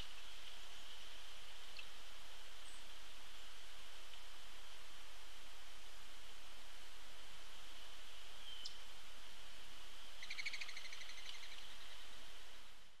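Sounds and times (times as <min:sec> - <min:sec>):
steady hiss: 0:00.0 - 0:10.3.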